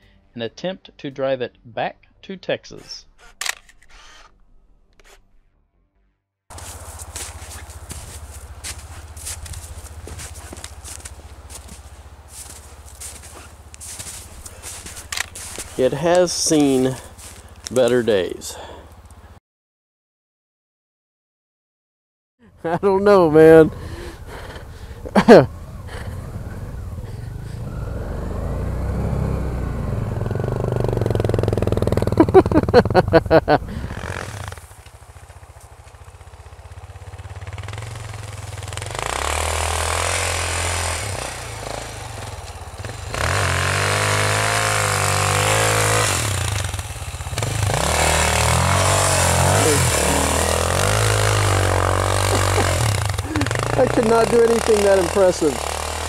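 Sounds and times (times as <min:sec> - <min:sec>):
motorcycle engine revving: 0:06.5 - 0:19.4, 0:22.6 - 0:56.0
sharp loud pulses: 0:33.7 - 0:34.8.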